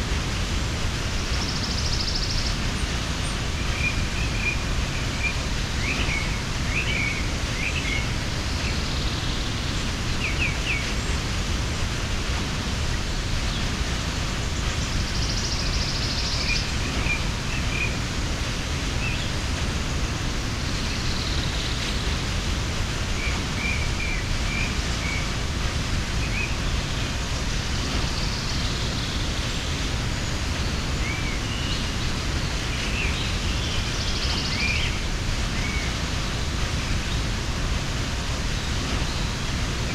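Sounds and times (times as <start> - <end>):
waterfall rushing: 0.0 - 39.9
small birds chirping: 13.4 - 39.9.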